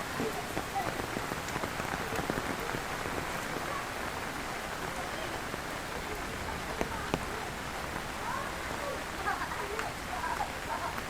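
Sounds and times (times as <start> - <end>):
heavy rain on hard surfaces: 0.0 - 11.0.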